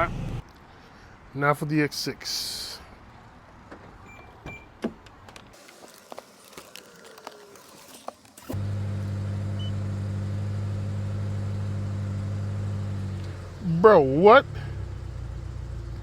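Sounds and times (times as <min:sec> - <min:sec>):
car engine starting and idling: 0:00.0 - 0:00.4, 0:08.2 - 0:16.0.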